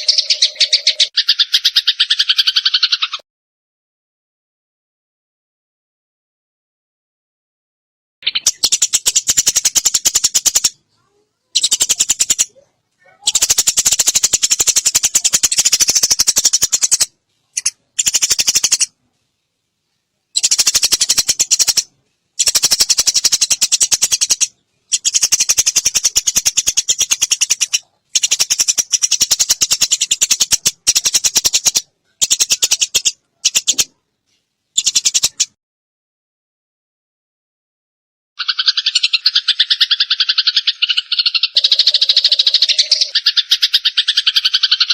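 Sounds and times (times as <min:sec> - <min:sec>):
sparrows chirping harshly: 0:00.0 - 0:03.2, 0:08.2 - 0:19.0, 0:20.3 - 0:34.0, 0:34.8 - 0:35.6, 0:38.4 - 0:44.9.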